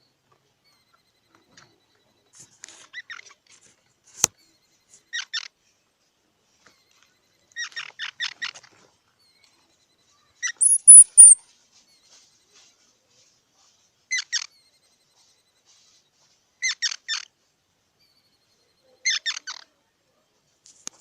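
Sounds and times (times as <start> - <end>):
squirrel chirping: 10.4 - 11.4
high-pitched squeals: 10.6 - 11.4.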